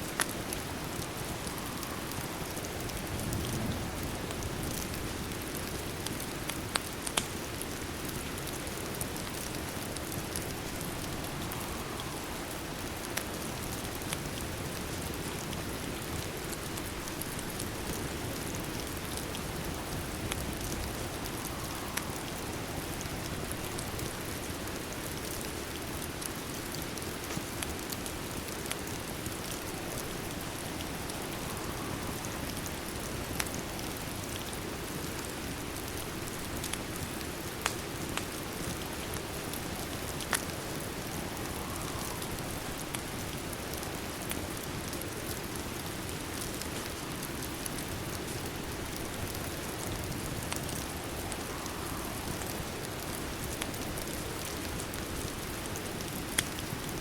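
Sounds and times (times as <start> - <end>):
steady rain: 0.0 - 57.0
sharp ticks and pops: 6.0 - 7.3.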